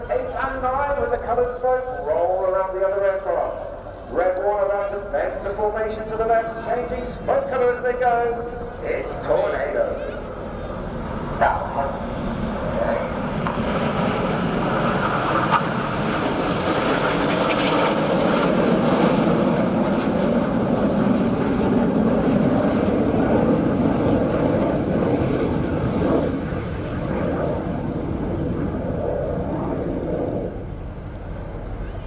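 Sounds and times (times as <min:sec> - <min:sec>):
jets passing roar: 0:08.4 - 0:30.7.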